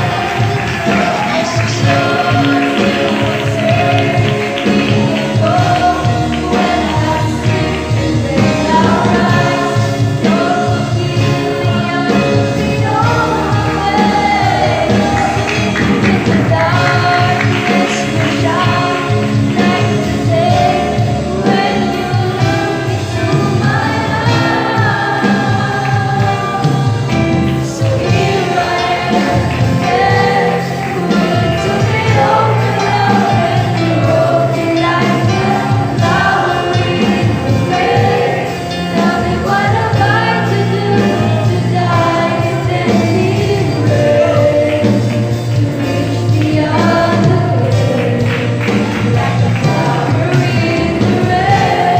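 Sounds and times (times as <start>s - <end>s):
instrumental accompaniment: 0.0s - 51.9s
youth choir singing gospel: 0.0s - 51.9s.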